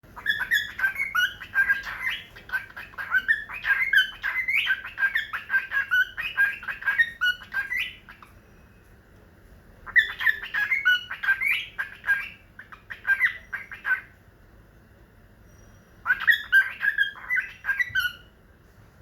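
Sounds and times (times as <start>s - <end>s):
parrot chirping and squawking: 0.1s - 8.5s, 9.8s - 14.2s, 15.5s - 18.4s.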